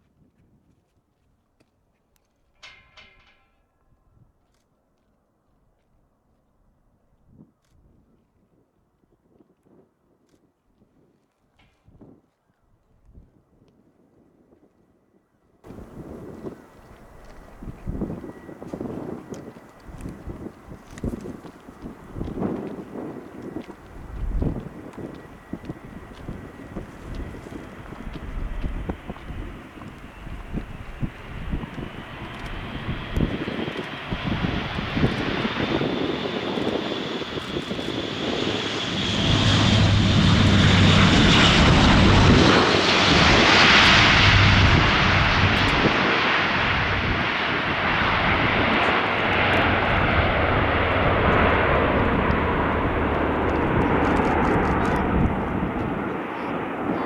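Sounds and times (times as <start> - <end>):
propeller drone: 15.7 - 57.0
turbine whine: 15.7 - 57.0.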